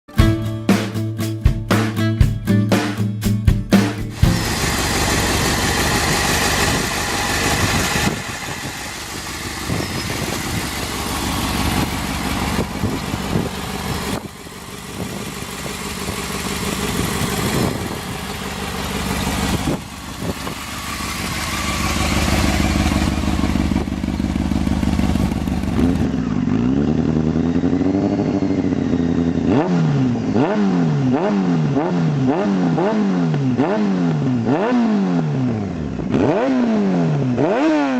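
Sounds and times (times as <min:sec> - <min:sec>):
rushing noise: 0:04.1 - 0:14.2
sport bike engine revving: 0:04.1 - 0:37.9.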